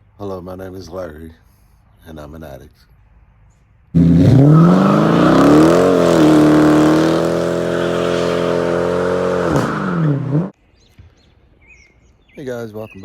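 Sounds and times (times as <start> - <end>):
car engine revving: 4.0 - 10.5.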